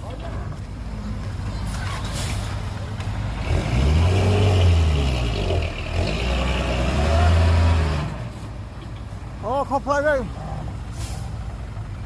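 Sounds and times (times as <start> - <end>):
heavy diesel engine revving: 1.6 - 8.5.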